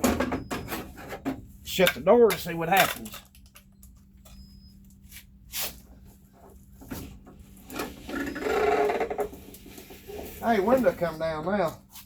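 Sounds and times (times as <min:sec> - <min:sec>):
squeaky rubbing: 0:07.8 - 0:11.5.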